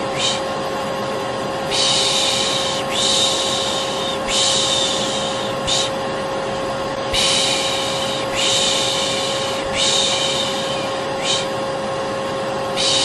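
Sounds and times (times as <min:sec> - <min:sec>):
person shushing: 0:00.0 - 0:00.5, 0:01.7 - 0:06.0, 0:07.1 - 0:11.6, 0:12.8 - 0:13.0
vacuum cleaner running: 0:00.0 - 0:13.0.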